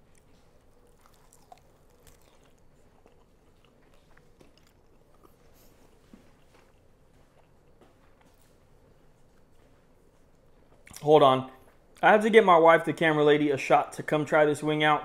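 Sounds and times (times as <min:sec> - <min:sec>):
faint chewing: 0:00.0 - 0:12.0.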